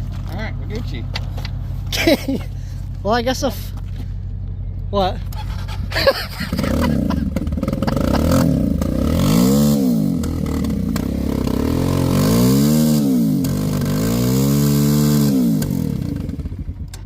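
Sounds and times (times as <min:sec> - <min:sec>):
pit bike engine revving: 0:05.2 - 0:17.0.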